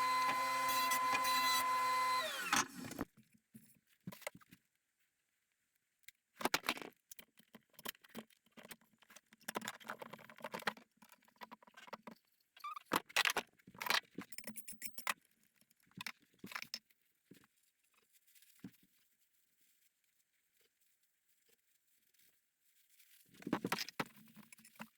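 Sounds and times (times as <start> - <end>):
tools scraping wood: 0.0 - 3.0.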